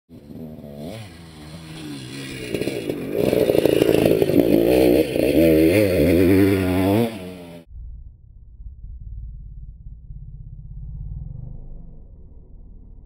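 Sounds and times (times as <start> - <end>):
motorcycle engine revving: 0.1 - 7.7.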